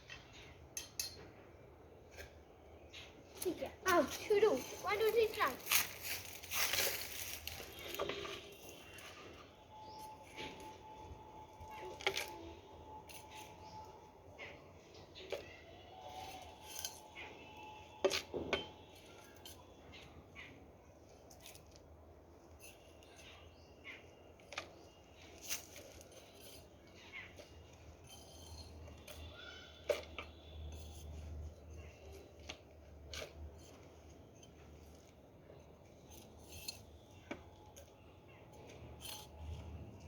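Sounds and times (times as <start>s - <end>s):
play tools scraping sand container: 22.4s - 40.0s.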